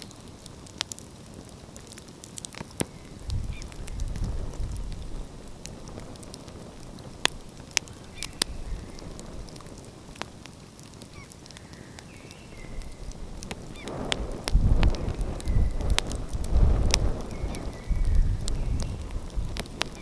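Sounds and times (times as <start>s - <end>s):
wood fire crackling: 0.0s - 20.0s
faint bird calls: 7.8s - 9.2s
surf rumbling: 12.6s - 20.0s.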